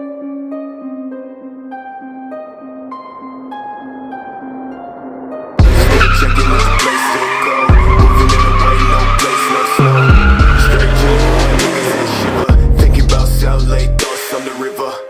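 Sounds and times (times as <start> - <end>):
hip-hop music with heavy bass: 5.1 - 15.0
car engine: 5.6 - 13.4
tyres squealing: 5.7 - 12.5.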